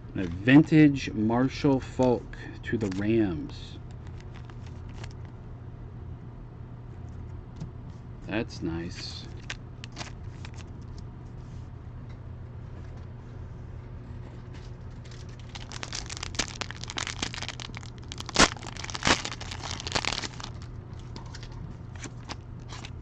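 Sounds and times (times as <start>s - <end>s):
foil wrapper tearing and crinkling: 4.0s - 5.3s, 9.4s - 10.7s, 14.9s - 23.0s.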